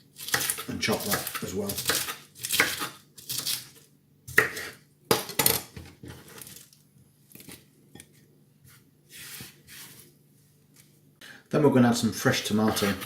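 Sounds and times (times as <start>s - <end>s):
knife chopping lettuce on board: 0.2s - 3.7s, 4.3s - 6.3s, 12.6s - 13.0s.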